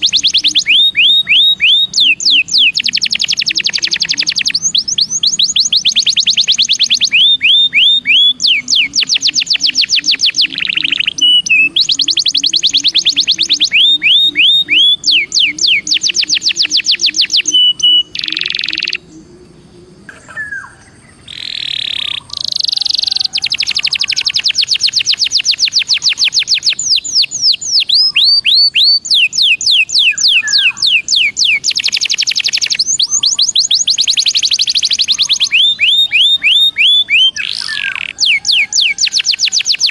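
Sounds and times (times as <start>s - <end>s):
canary singing rolling trills: 0.0s - 39.9s.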